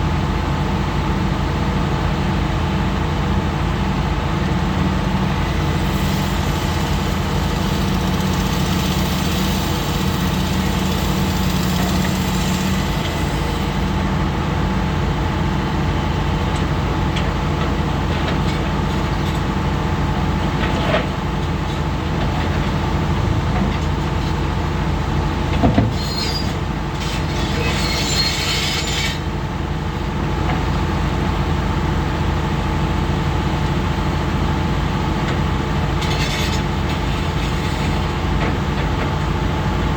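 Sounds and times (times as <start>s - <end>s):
excavator diesel engine running: 0.0s - 39.9s
harsh hissing scraping burst: 5.3s - 14.1s.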